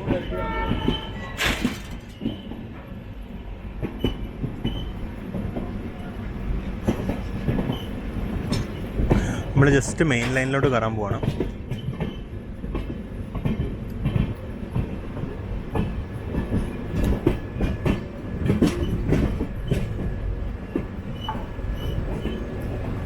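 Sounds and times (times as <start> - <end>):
train coaches rumbling: 0.0 - 23.0
wheels clicking over rail joints: 11.2 - 23.0.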